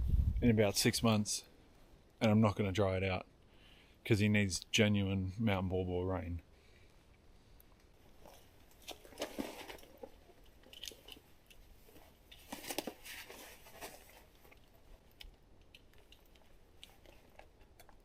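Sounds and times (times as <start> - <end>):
rustling and crunching: 7.7 - 18.0.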